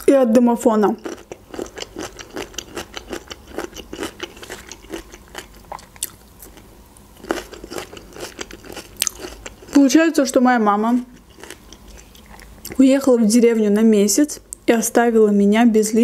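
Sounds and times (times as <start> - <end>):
person chewing food: 1.0 - 9.8, 11.1 - 12.8.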